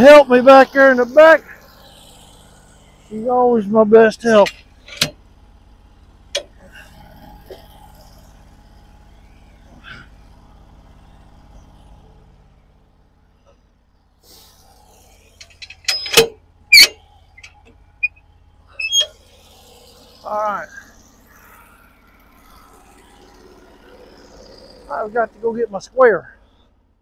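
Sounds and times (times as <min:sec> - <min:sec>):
log turned on sawmill bed: 0:00.0 - 0:27.0.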